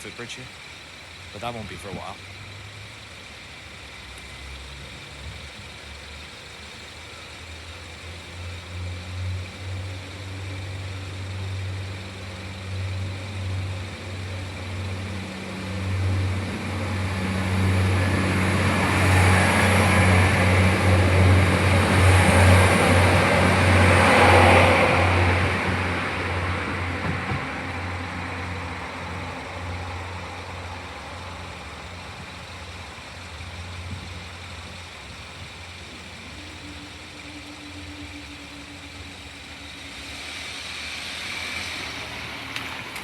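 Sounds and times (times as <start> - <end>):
vehicle engine humming: 0.0 - 43.0
rush of noise: 13.5 - 43.0.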